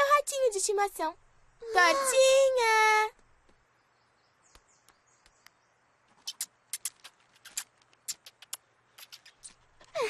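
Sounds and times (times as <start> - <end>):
cartoon mouse squeaks: 6.2 - 9.7.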